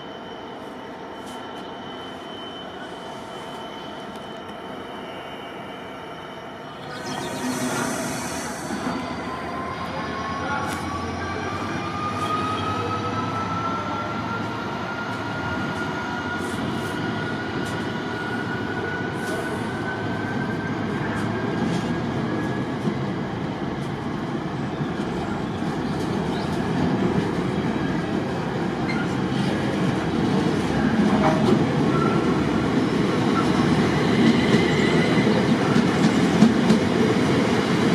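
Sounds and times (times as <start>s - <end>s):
train rumble and wheel noise: 0.0s - 37.9s
high whine rising in pitch: 6.6s - 10.5s.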